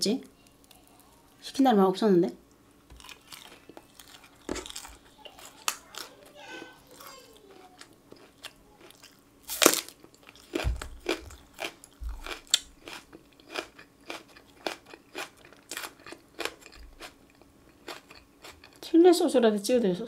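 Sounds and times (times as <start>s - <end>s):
crunchy chewing: 2.9s - 18.8s.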